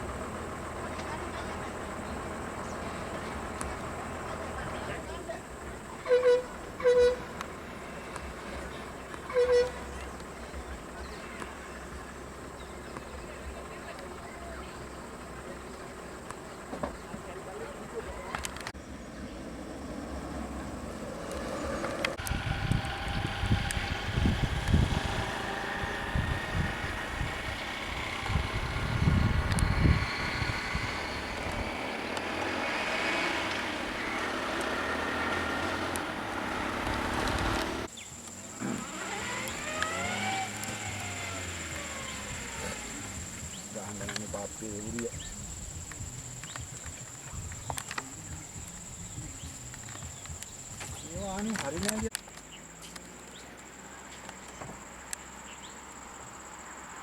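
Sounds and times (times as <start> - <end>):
traffic rumble: 0.0 - 57.0
vehicle engine running: 0.0 - 57.0
vehicle horn honk: 5.9 - 7.4, 9.2 - 10.2.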